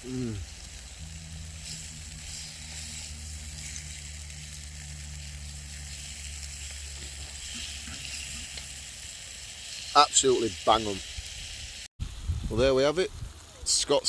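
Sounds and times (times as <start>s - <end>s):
low hum: 0.0s - 9.2s
steaks sizzling in a frying pan: 0.5s - 11.9s.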